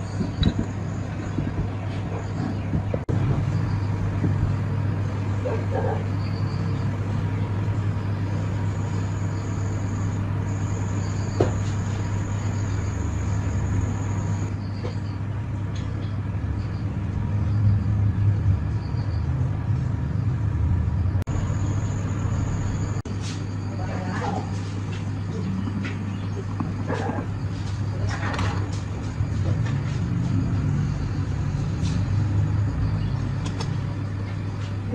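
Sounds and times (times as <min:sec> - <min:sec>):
machine humming: 0:00.0 - 0:34.9
faint high whine: 0:03.2 - 0:15.3, 0:16.5 - 0:28.6.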